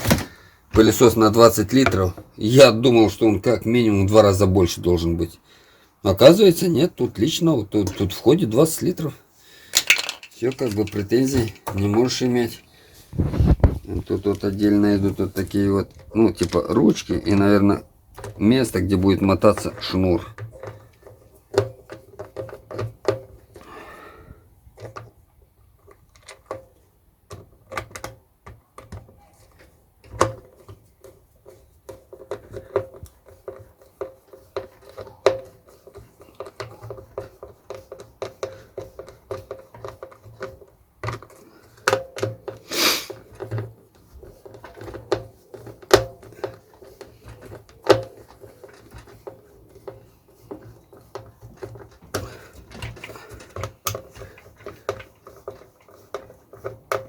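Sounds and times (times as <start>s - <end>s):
plastic clicks and knocks: 9.8s - 12.2s, 13.2s - 23.6s, 25.8s - 57.0s.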